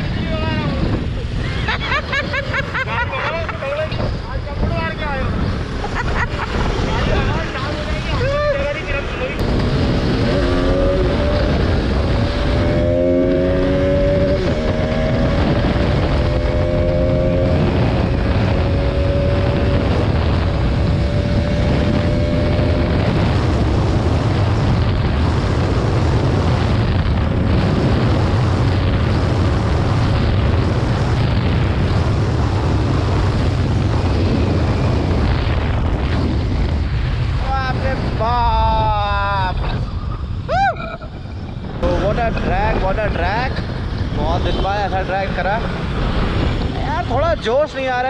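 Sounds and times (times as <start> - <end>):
wind rush on microphone: 0.0 - 48.0
motorcycle engine accelerating: 9.0 - 38.0.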